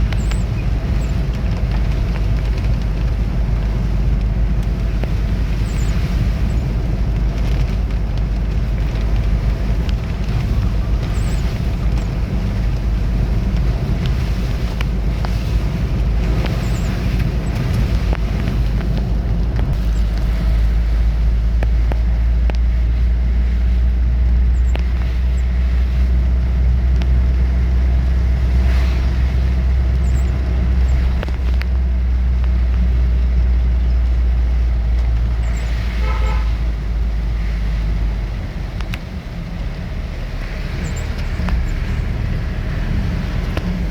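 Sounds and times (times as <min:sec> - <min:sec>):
vehicle engine rumbling: 0:00.0 - 0:43.9
short horn toot: 0:35.9 - 0:36.6.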